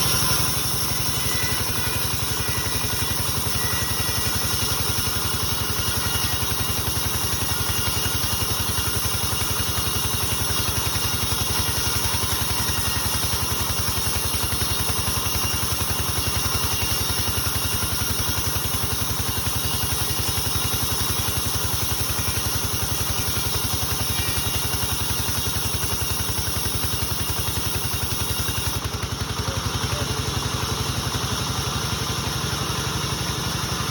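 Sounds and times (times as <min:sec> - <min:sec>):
sawmill saw running: 0:00.0 - 0:33.9.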